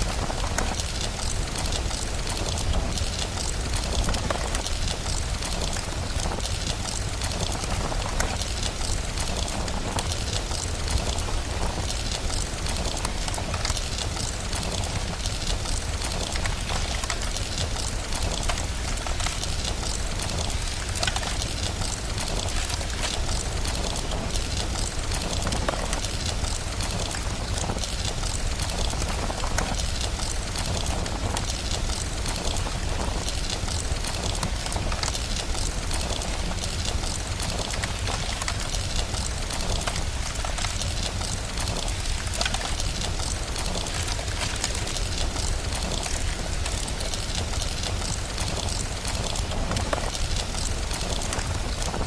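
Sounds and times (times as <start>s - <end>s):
fireplace crackles and pops: 0.0s - 52.0s
steady rain: 0.0s - 52.0s.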